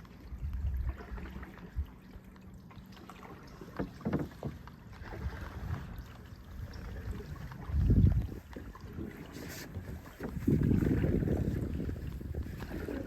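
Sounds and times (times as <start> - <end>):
paddles splashing in water: 0.0 - 13.0
wind buffeting microphone: 0.2 - 2.0, 5.0 - 13.0.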